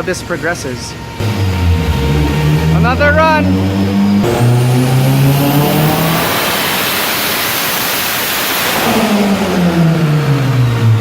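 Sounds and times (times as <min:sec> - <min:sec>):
car engine revving at full throttle: 0:01.2 - 0:11.0.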